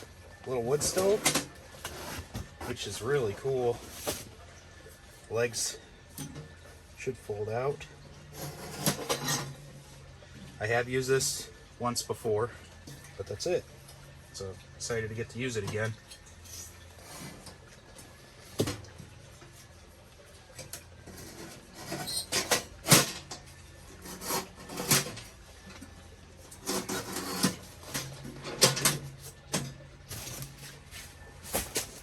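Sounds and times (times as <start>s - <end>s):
metal stove clanking and scraping: 0.0s - 3.0s, 8.3s - 9.6s, 21.0s - 25.4s, 26.5s - 30.6s.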